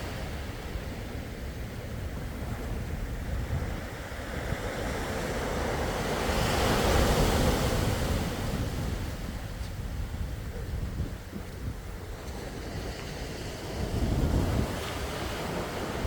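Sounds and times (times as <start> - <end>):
wind rumble on microphone: 0.0 - 16.0
sea waves breaking: 11.9 - 16.0.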